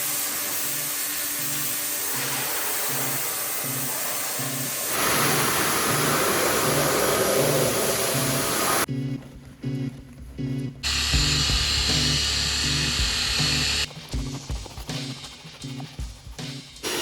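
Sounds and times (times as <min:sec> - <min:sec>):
pressure washer spraying: 0:00.0 - 0:08.9, 0:10.9 - 0:13.9
music with repeating bass: 0:08.9 - 0:16.8.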